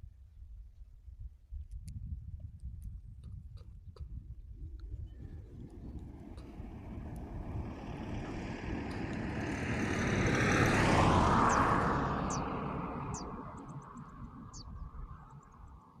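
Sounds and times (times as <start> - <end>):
vehicle passing by: 5.2 - 16.0.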